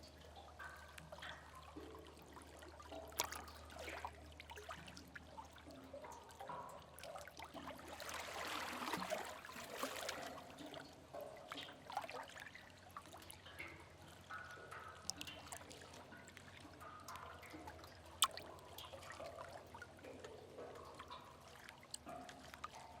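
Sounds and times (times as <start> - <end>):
water dripping and trickling: 0.0 - 23.0
water splashing: 18.2 - 18.8.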